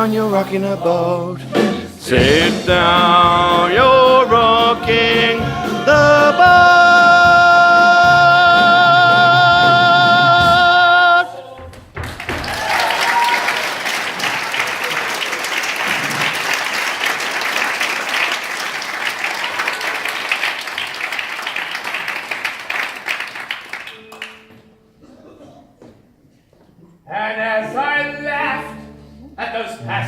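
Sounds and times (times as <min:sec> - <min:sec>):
musical accompaniment: 0:00.0 - 0:11.8, 0:12.8 - 0:25.2
audience applause and cheering: 0:12.0 - 0:24.4
person whooping: 0:12.5 - 0:13.7.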